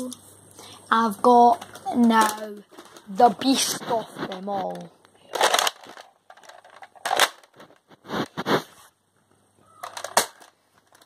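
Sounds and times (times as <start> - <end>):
plastic toy blaster rattling: 1.6 - 7.8, 9.8 - 11.0.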